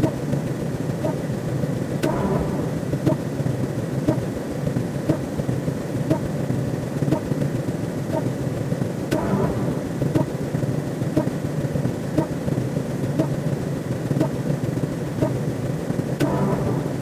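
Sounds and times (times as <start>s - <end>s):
low rumbling noise: 1.3s - 7.0s, 9.0s - 12.2s, 16.2s - 17.0s.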